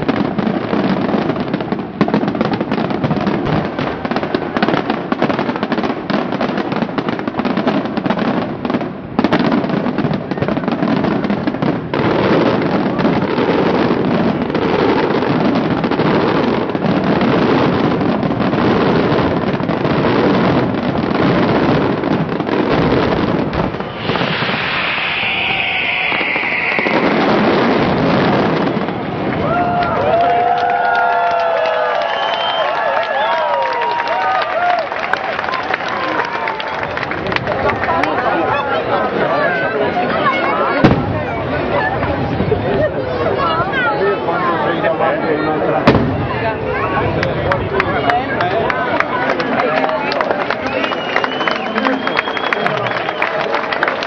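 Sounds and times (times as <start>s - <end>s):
fireworks bangs and crackling: 0.0s - 54.0s
high falling whistle: 23.8s - 28.3s, 32.0s - 33.5s.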